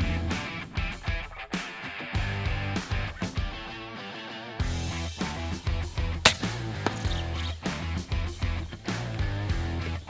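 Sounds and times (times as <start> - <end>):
guitar music with steady beat: 0.0 - 10.0.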